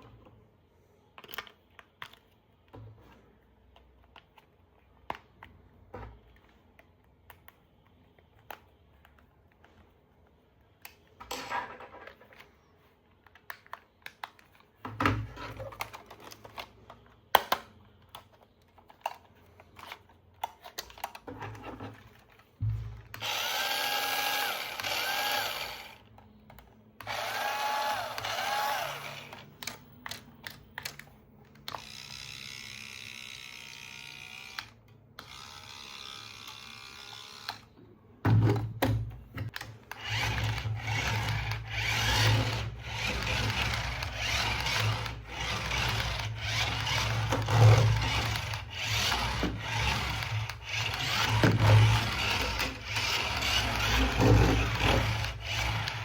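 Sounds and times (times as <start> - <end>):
plastic toy parts clicking: 1.2 - 2.6, 6.4 - 9.9, 13.1 - 14.8, 15.6 - 21.3, 23.1 - 37.7
electric toy motor whirring: 23.1 - 26.1, 27.0 - 29.5, 31.7 - 37.7, 39.8 - 56.0.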